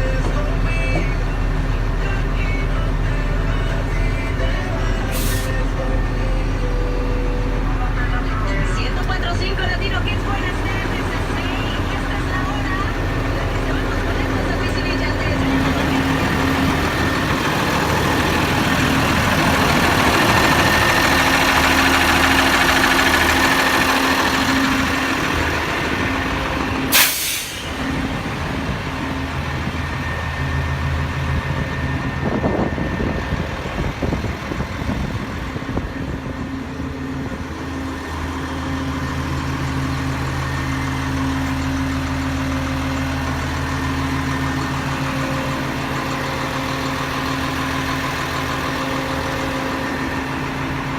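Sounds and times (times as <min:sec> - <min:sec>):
diesel truck engine idling: 0:00.0 - 0:50.9
air brakes hissing: 0:05.1 - 0:05.7, 0:26.8 - 0:28.0.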